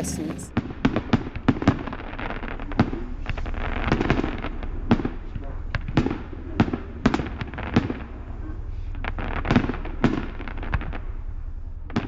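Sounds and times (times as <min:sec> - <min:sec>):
fireworks bangs and crackles: 0:00.0 - 0:05.2.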